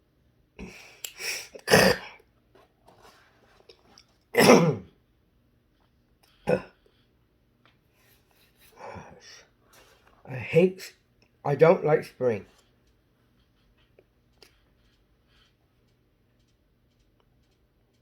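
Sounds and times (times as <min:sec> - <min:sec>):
man clearing his throat: 0:01.6 - 0:02.2, 0:04.4 - 0:04.9, 0:06.5 - 0:06.8
man coughing: 0:01.6 - 0:02.2, 0:04.4 - 0:04.9, 0:06.5 - 0:06.8.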